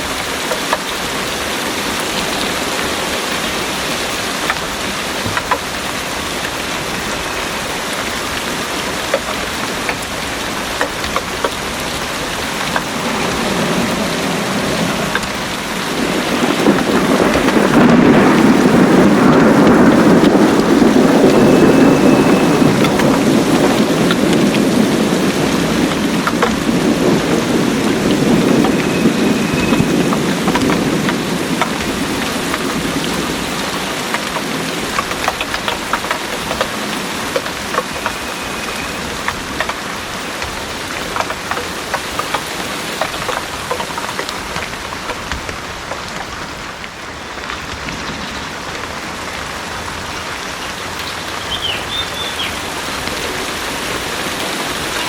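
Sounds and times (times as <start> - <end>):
heavy rain pouring: 0.0 - 55.0
thunder rumbling: 0.0 - 55.0.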